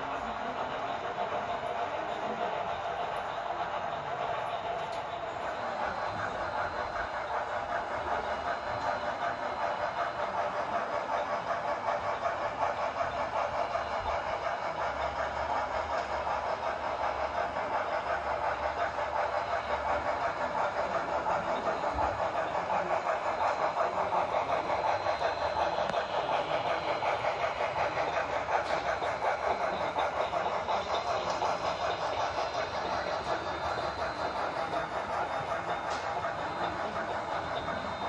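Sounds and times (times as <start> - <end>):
model locomotive exhaust chuffing: 0.0 - 38.0.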